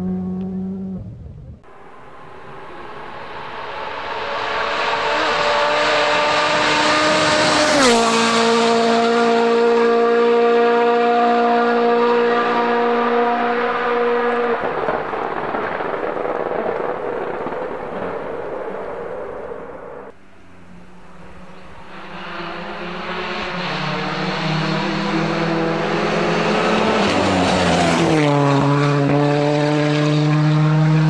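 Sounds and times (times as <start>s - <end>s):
rally car passing: 0.0s - 1.0s, 1.6s - 31.0s
tyre and road noise: 0.0s - 31.0s.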